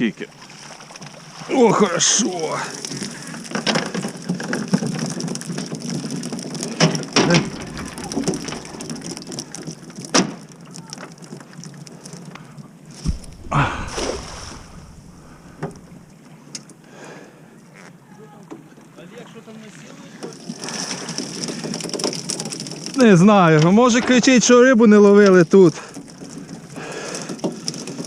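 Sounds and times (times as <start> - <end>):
knocks and clatters: 3.6 - 10.3, 13.0 - 16.1.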